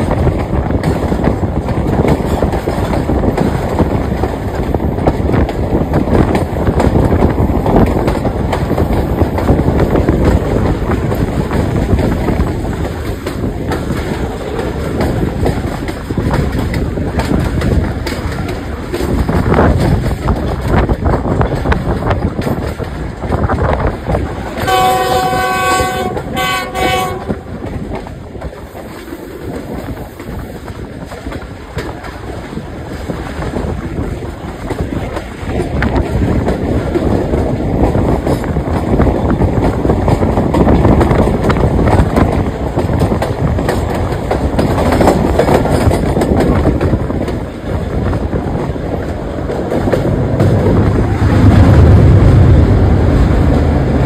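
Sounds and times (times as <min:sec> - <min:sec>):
train wheels rumbling on rails: 0:00.0 - 0:54.0
locomotive chord horn: 0:24.6 - 0:27.6.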